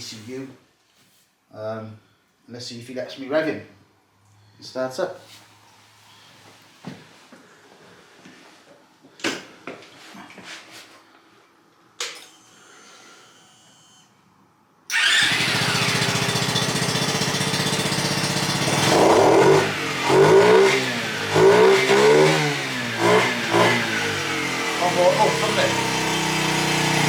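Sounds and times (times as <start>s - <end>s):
small motorbike engine revving: 14.9s - 27.0s.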